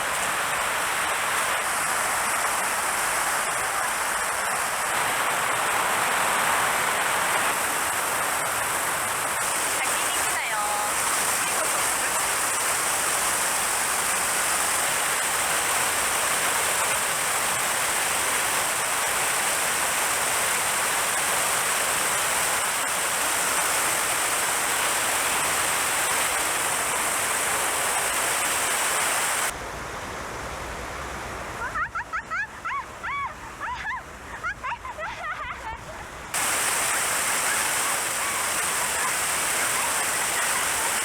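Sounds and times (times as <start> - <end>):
stream water rushing: 0.0 - 41.0.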